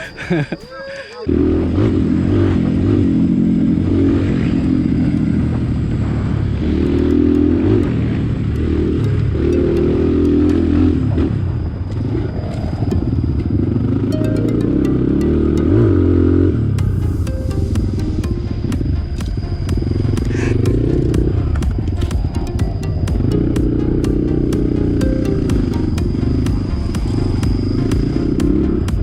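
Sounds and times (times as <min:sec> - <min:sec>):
dirt bike engine revving: 0:01.3 - 0:11.5, 0:18.6 - 0:29.0
sharp ticks: 0:06.8 - 0:11.2.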